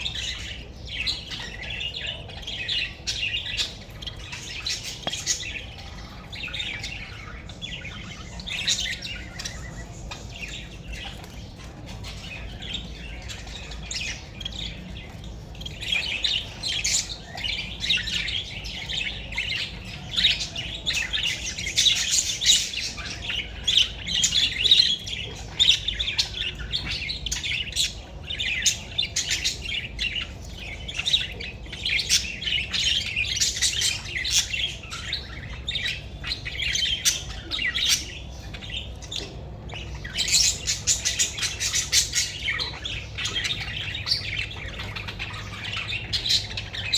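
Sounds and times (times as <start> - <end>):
young birds chirping and squawking: 0.0 - 46.9.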